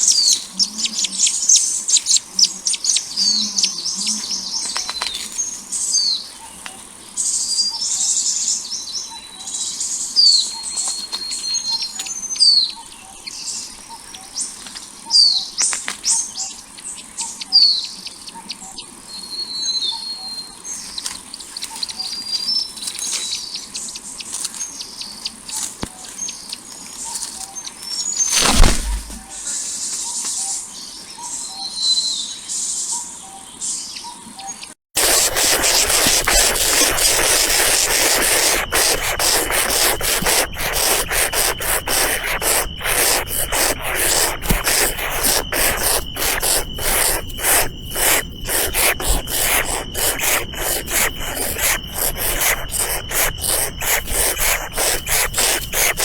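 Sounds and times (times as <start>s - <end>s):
loud thump or rustle: 28.3s - 29.4s
small birds chirping: 35.0s - 56.0s.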